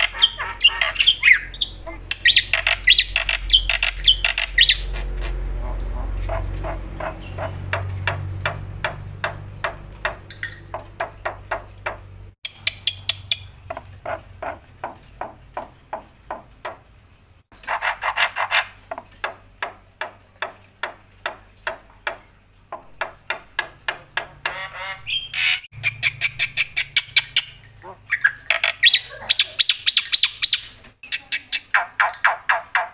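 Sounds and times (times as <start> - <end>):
starling harsh chattering: 0.0 - 9.4
starling clicking calls: 0.0 - 16.8, 23.0 - 32.9.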